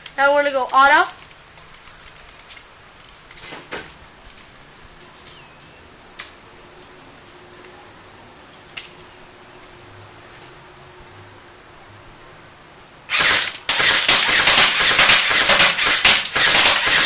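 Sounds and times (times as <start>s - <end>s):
sharp clicks: 0.0s - 3.4s
airsoft gun firing clicks: 13.1s - 17.0s.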